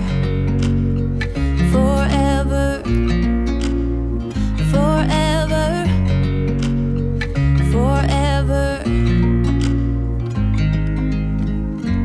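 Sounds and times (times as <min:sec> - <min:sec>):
person singing: 0:00.0 - 0:09.9
gentle pop song: 0:00.0 - 0:12.0.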